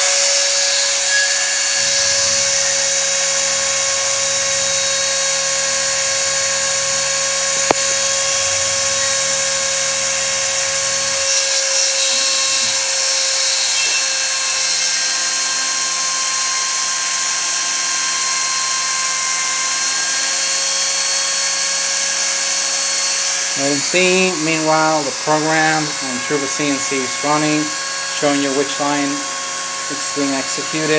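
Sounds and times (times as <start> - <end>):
motors humming: 0.0 - 15.4, 23.2 - 30.9
spindle high-pitched whine: 0.0 - 30.9.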